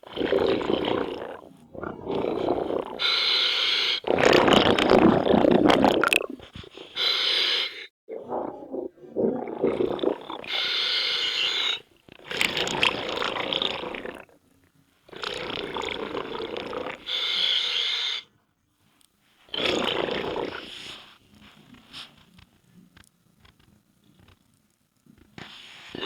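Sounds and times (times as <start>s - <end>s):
exhaled bubbles rumbling: 0.0s - 3.0s, 4.1s - 6.6s, 8.1s - 10.6s, 12.1s - 14.4s
regulator inhalation hiss: 2.1s - 4.1s, 6.7s - 7.9s, 10.3s - 11.9s, 17.1s - 18.3s.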